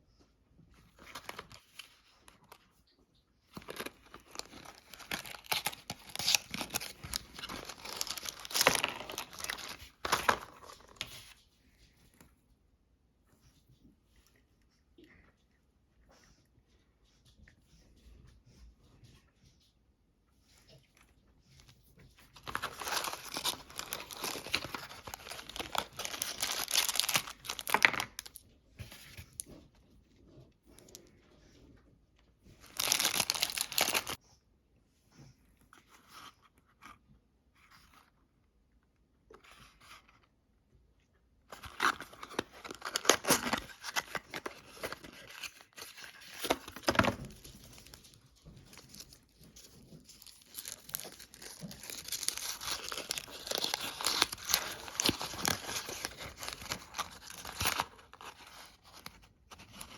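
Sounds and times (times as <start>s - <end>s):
snack packaging tearing and crinkling: 3.5s - 11.0s, 22.4s - 28.4s, 32.6s - 34.2s, 41.5s - 59.9s.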